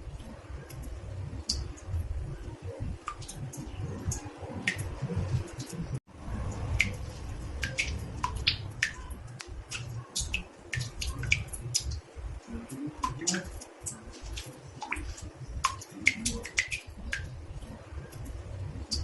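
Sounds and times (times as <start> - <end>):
water drops plinking in bathtub: 6.6 - 17.4.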